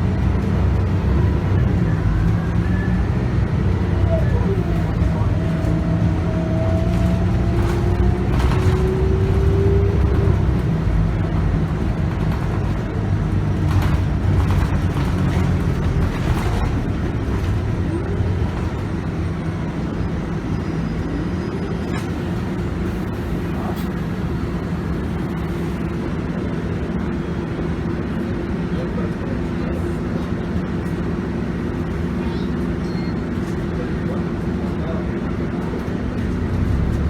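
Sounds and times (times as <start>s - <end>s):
bus diesel engine and gearbox: 0.0s - 37.0s.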